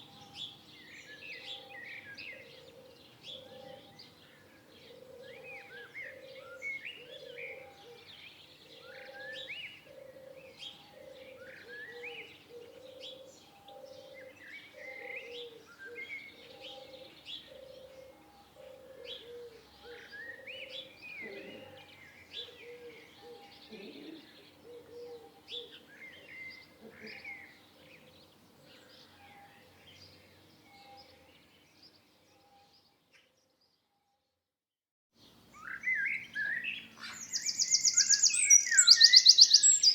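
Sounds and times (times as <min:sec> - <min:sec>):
small birds chirping: 0:35.2 - 0:39.9.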